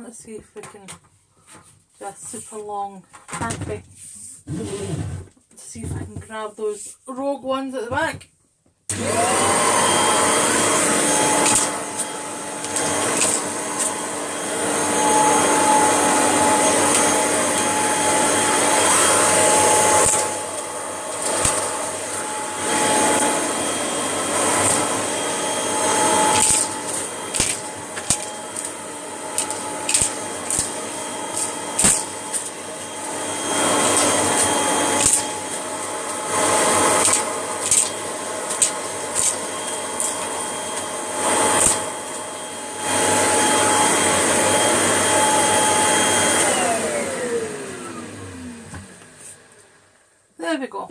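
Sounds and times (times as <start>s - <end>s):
vacuum cleaner running: 4.5s - 6.0s, 8.9s - 50.2s.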